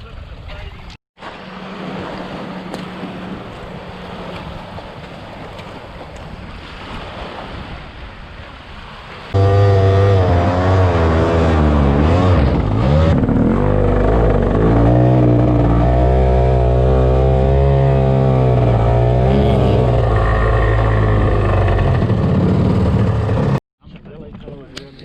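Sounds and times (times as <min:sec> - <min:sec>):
jet ski engine revving: 0:01.2 - 0:05.4, 0:09.3 - 0:23.6.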